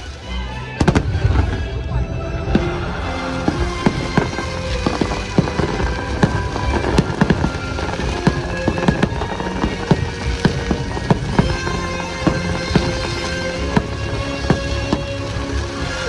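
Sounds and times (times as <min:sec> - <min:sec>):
fireworks show music: 0:00.0 - 0:16.0
fireworks bangs and crackles: 0:00.7 - 0:16.0.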